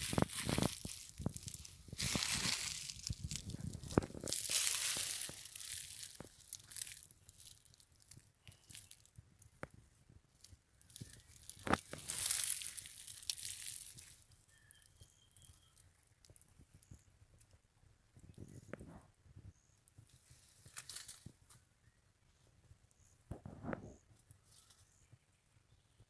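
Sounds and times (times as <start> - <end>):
rustling crackling noise: 0.0 - 15.0.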